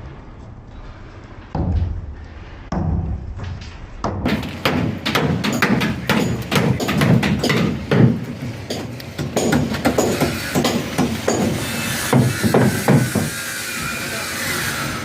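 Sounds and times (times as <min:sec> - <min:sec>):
knocks and thuds on concrete: 0:01.6 - 0:11.6, 0:12.2 - 0:13.3.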